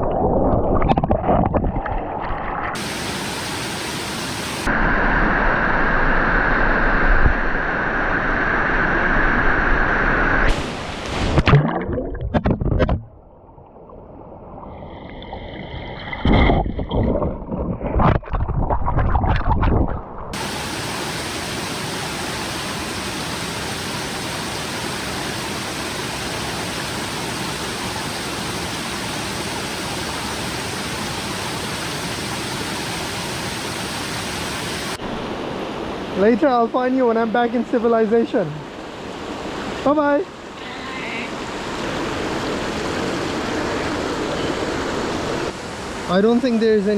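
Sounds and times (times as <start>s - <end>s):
stream water rushing: 2.6s - 7.0s, 7.6s - 12.0s, 20.3s - 46.9s.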